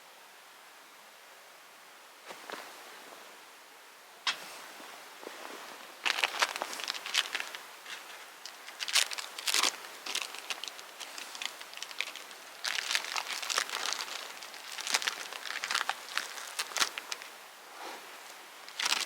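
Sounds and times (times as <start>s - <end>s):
kindling crackling and snapping: 6.0s - 17.4s, 18.2s - 19.0s.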